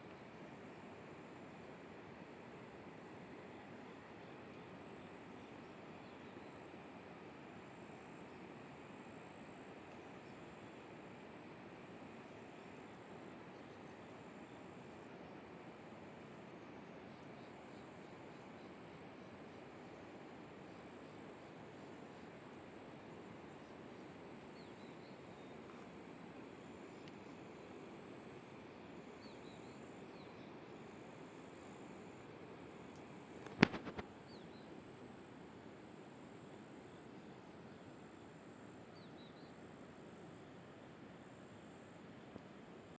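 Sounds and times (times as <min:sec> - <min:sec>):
outdoor ambience: 0:00.0 - 0:42.9
sharp clicks: 0:33.4 - 0:34.1.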